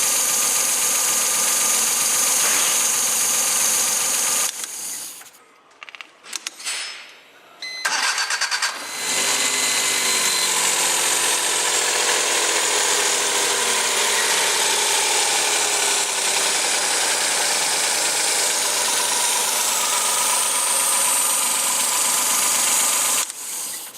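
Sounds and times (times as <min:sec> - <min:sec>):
engine starting and idling: 0:07.8 - 0:23.9.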